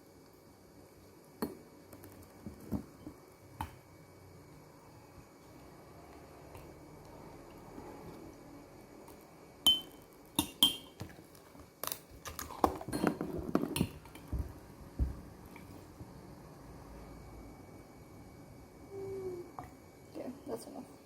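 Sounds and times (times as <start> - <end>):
glass or crockery clinking: 9.7 - 11.0.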